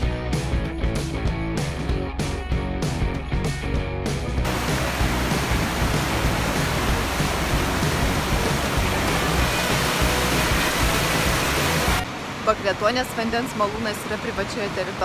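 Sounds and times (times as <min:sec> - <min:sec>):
water rushing over a weir: 0:04.4 - 0:15.0.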